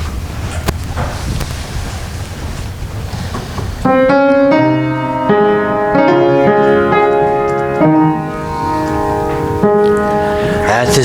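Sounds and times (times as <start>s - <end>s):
piano playing chords and melody: 3.8s - 11.0s.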